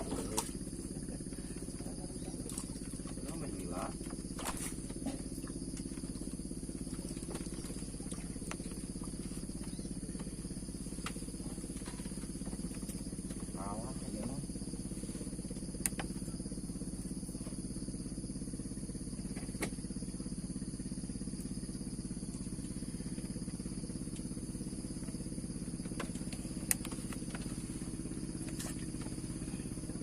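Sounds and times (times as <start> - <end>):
small engine running: 21.8 - 30.0.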